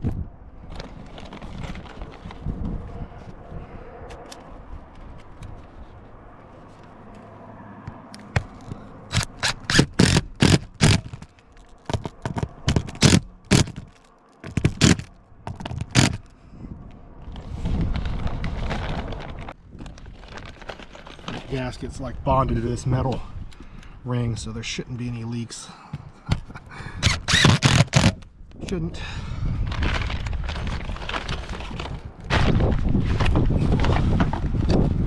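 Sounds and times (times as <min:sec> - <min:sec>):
scraping and handling noise: 0:00.7 - 0:02.5, 0:04.1 - 0:16.4, 0:17.3 - 0:21.7
sharp clicks and knocks: 0:07.9 - 0:16.3.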